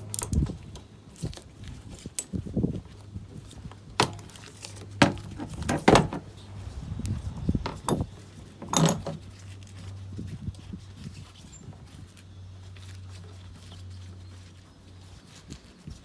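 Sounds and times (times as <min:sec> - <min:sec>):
metal objects clinking: 0:00.0 - 0:00.5, 0:07.6 - 0:09.2.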